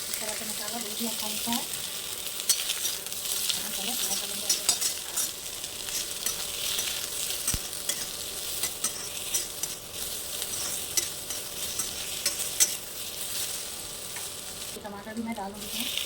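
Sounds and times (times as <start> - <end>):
vegetables sizzling in hot oil: 0.0 - 16.0
spoon clicking against pan: 11.0 - 12.8.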